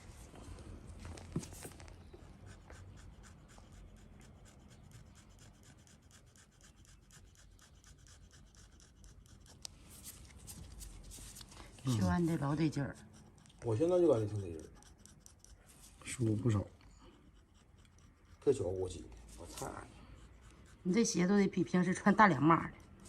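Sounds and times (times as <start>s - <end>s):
pedicure tool scraping skin: 1.3s - 16.7s, 17.3s - 23.0s.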